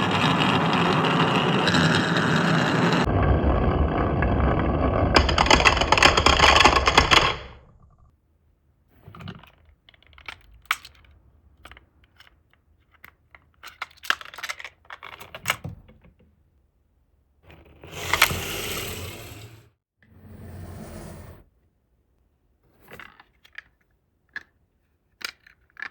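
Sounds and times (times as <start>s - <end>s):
marbles rolling on wooden track: 0.0s - 8.1s
steady rolling rattle: 0.0s - 8.1s
marbles clicking and clacking: 0.2s - 7.8s.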